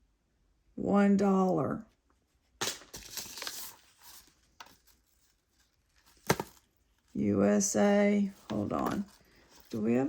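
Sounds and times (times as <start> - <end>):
jewelry rustling: 2.0 - 10.0.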